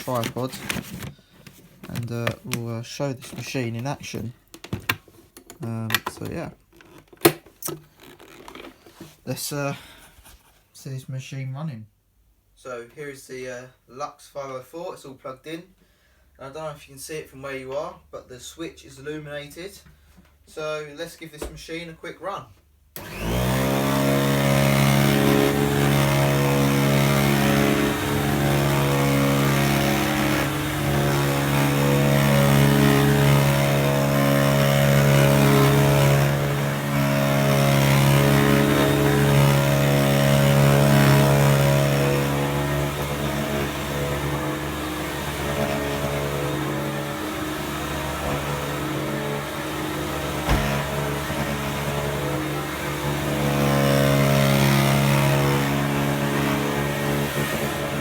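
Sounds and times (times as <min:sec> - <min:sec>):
vacuum cleaner running: 0:00.0 - 0:02.5, 0:23.0 - 0:58.0
short knock: 0:50.5 - 0:50.8.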